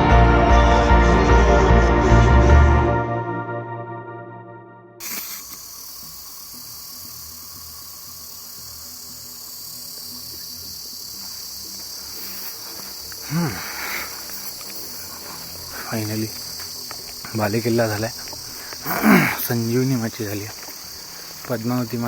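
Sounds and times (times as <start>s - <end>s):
background music: 0.0s - 5.0s
insects chorus: 5.0s - 22.0s.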